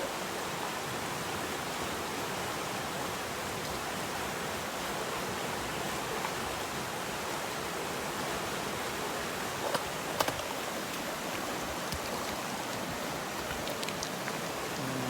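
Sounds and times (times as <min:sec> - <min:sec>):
water rushing over rocks: 0:00.1 - 0:15.0.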